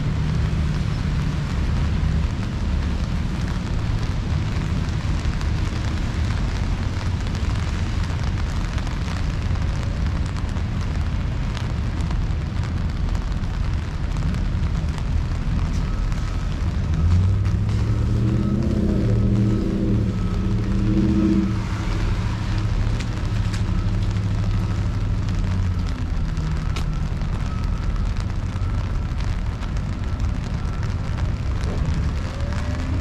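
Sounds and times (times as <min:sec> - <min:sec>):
city traffic rumble: 0:00.0 - 0:33.0
rain hiss and patter: 0:00.0 - 0:33.0.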